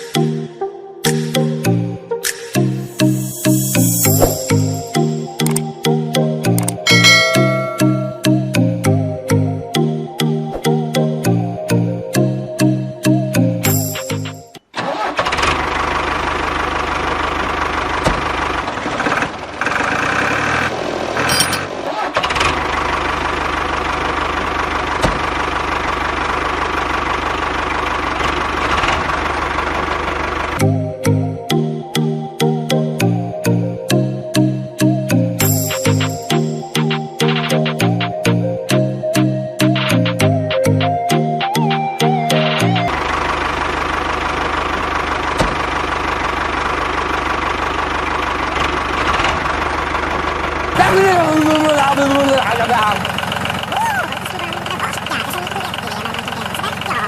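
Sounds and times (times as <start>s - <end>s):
engine idling with knocking beat: 15.7s - 20.4s, 22.5s - 30.6s, 42.9s - 57.0s
toy tractor motor running: 50.8s - 57.0s.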